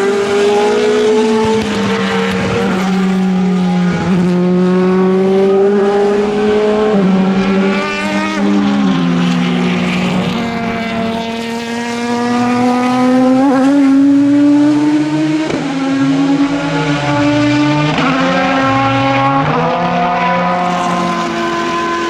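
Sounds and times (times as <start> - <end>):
racing car engine accelerating: 0.0 - 22.0.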